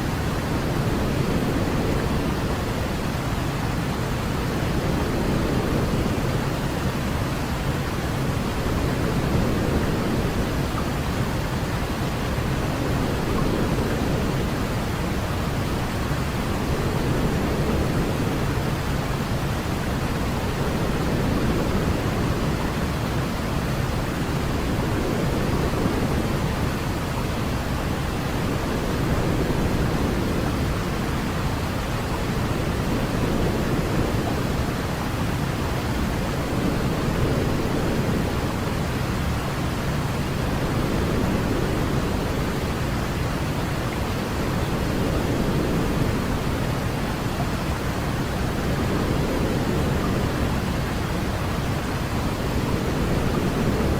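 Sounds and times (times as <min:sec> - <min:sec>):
deep white noise: 0:00.0 - 0:53.9.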